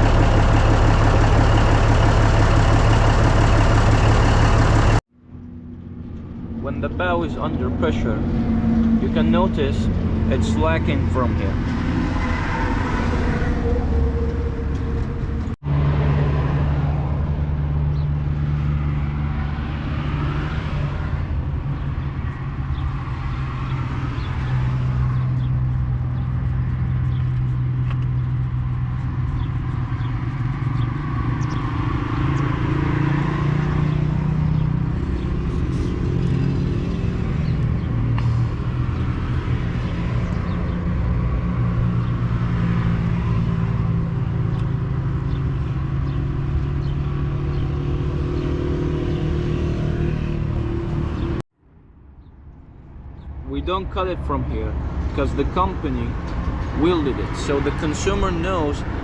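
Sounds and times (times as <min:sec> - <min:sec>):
diesel engine running: 0:00.0 - 0:12.1, 0:23.7 - 0:51.4.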